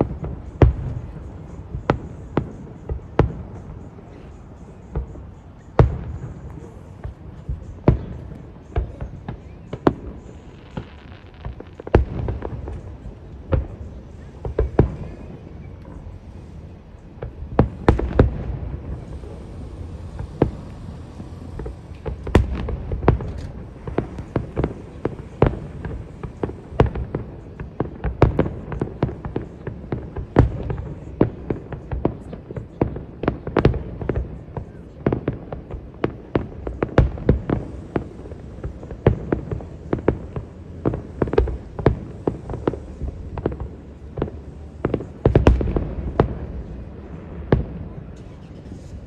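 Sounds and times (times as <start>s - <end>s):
fireworks booms and cracks: 0.0s - 49.0s.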